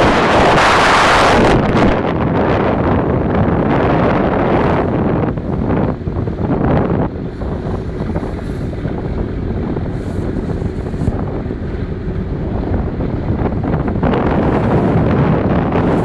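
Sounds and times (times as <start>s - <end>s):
small boat engine rumble: 0.0s - 16.0s
wind buffeting microphone: 0.0s - 16.0s.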